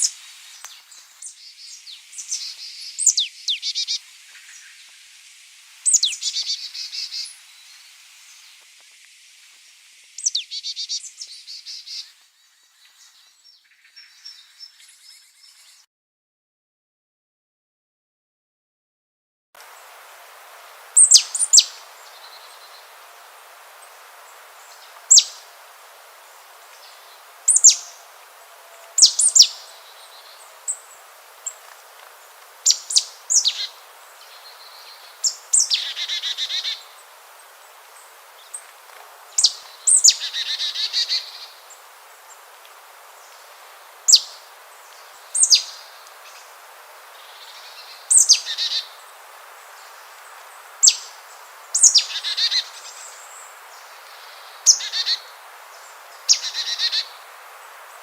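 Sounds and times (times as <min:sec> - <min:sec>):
faint steady hiss: 0:00.0 - 0:15.9, 0:19.6 - 0:58.0
buzzy rasping bird calls: 0:20.9 - 0:22.9, 0:23.8 - 0:25.5, 0:26.8 - 0:37.1, 0:39.3 - 0:41.8, 0:47.2 - 0:49.0, 0:50.8 - 0:57.2.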